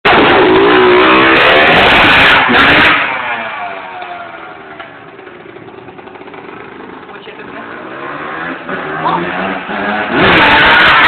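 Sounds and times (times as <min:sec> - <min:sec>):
motocross bike revving: 0:00.1 - 0:11.0.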